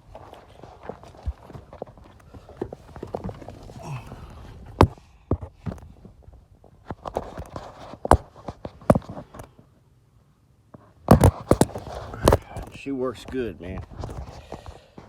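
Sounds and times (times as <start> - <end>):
sharp clicks and knocks: 11.1 - 13.4.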